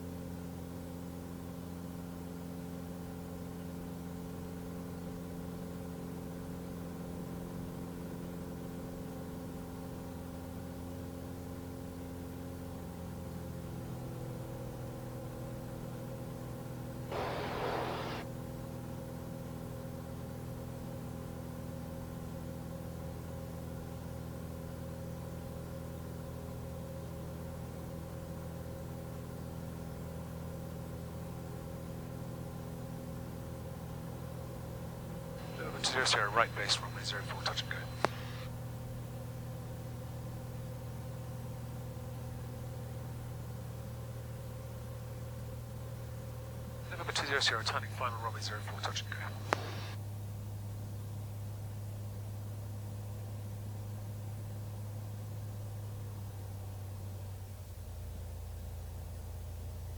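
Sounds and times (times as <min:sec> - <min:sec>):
propeller plane engine droning: 0:10.1 - 0:25.7, 0:31.8 - 0:55.9.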